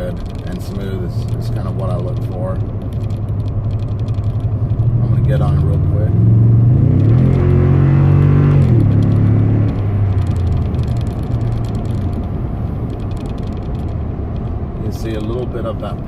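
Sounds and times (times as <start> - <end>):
truck engine accelerating: 0.0 - 15.0.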